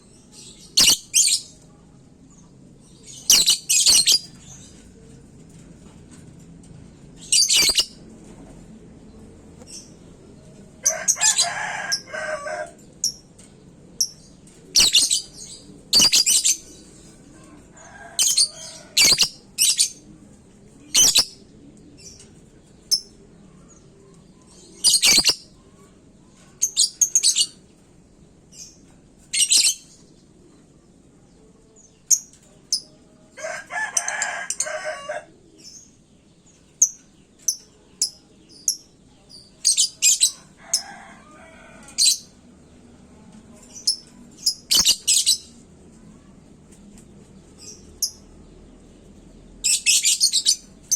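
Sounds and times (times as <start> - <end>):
lovebirds chirping and shrieking: 0.1 - 1.6, 2.9 - 4.9, 7.2 - 8.0, 10.8 - 13.2, 14.0 - 20.0, 20.9 - 21.4, 24.4 - 25.6, 32.1 - 42.5, 43.6 - 45.6, 49.5 - 50.9.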